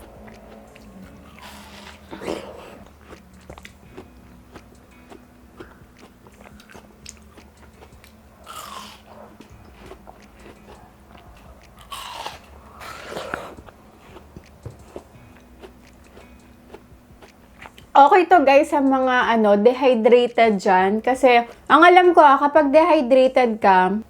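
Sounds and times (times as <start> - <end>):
biting and chewing watermelon: 0.0 - 18.0.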